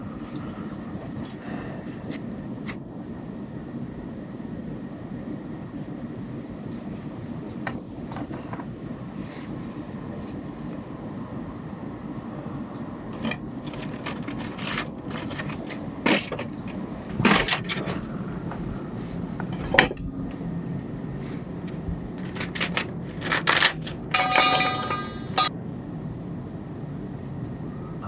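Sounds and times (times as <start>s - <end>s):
low background hum: 0.0s - 28.0s
small hard objects clicking: 13.2s - 16.8s, 22.2s - 25.5s
ringing clink: 23.8s - 25.5s.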